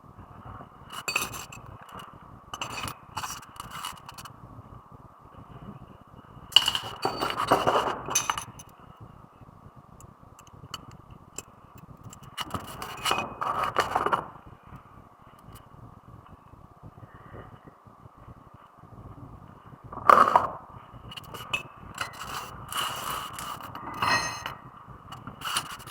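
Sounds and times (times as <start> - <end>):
metal tools clinking and scraping: 2.6 - 4.1, 6.6 - 8.6, 22.0 - 24.6.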